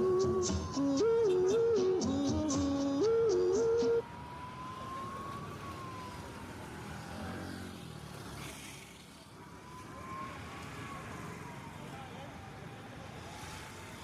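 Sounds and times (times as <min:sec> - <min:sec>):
siren rising and falling: 0:00.0 - 0:07.5
road traffic noise: 0:00.0 - 0:14.0.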